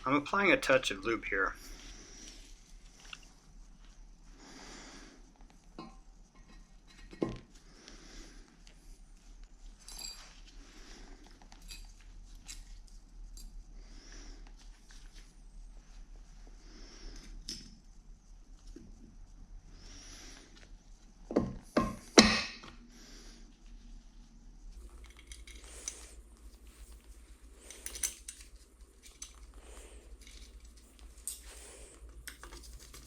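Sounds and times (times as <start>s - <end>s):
soft rustling: 0.0s - 21.7s, 22.8s - 33.0s
faint steady hum: 0.0s - 33.0s
metal parts clinking: 9.8s - 10.3s, 24.9s - 26.2s, 27.6s - 29.5s, 30.1s - 31.6s.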